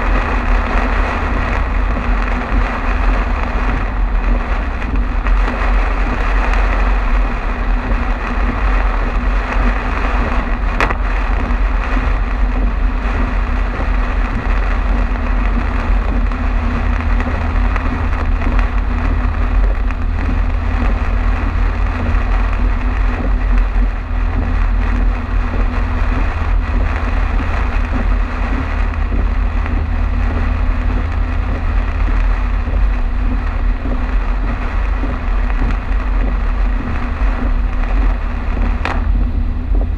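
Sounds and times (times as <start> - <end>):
car road and engine rumble: 0.0 - 39.9
rain and tyre spray hiss: 0.0 - 39.9.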